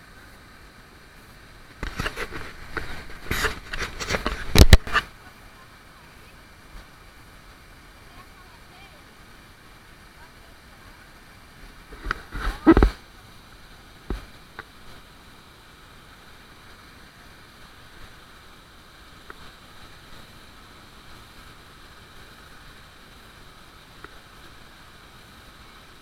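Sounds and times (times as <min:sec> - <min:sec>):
waterfall rushing: 0:00.0 - 0:26.0
wind or handling noise: 0:01.7 - 0:05.1, 0:11.9 - 0:13.0.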